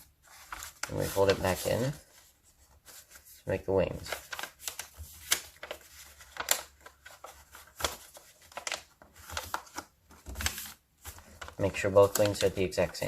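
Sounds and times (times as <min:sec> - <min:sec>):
paper rustling and crackling: 0:00.0 - 0:13.0.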